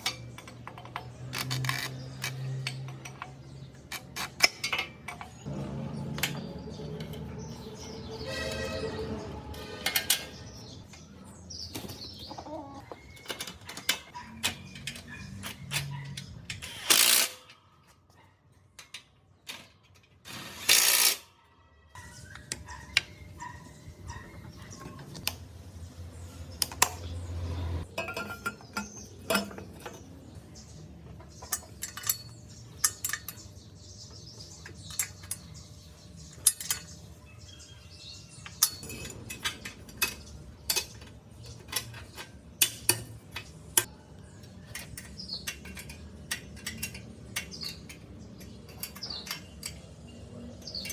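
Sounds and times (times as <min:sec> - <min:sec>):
metal tools clinking: 0:00.0 - 0:11.4, 0:27.8 - 0:37.2, 0:38.0 - 0:50.9.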